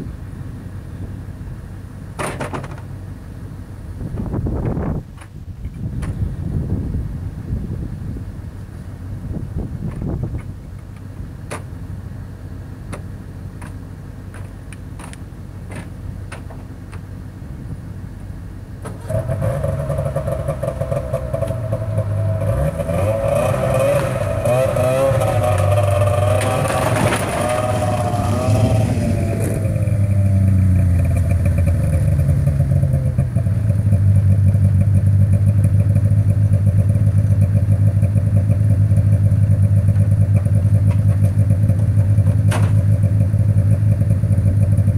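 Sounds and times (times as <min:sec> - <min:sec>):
snowmobile engine running: 0:19.0 - 0:44.9.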